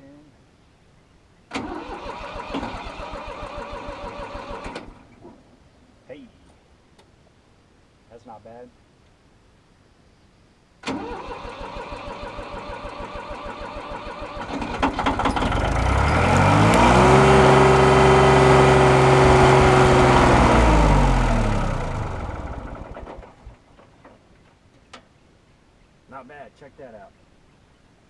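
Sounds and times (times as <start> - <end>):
diesel tractor engine running: 10.9 - 23.6.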